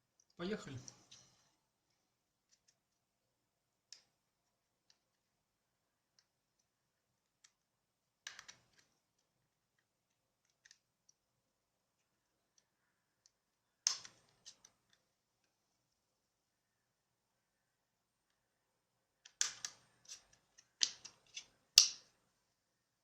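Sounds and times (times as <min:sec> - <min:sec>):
small plastic parts clicking: 0:00.1 - 0:03.1, 0:03.8 - 0:15.9, 0:19.2 - 0:22.2.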